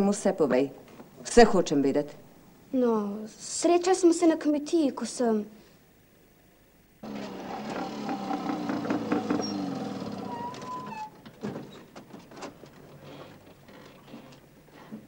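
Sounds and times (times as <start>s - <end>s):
old car engine running: 7.0s - 11.0s.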